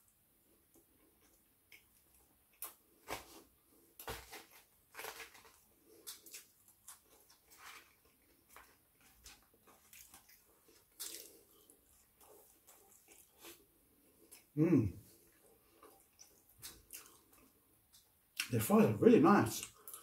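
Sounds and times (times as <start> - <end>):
chewing and wet mouth noises: 0.5 - 3.0, 5.5 - 18.5, 19.6 - 20.0
person humming: 14.6 - 15.0.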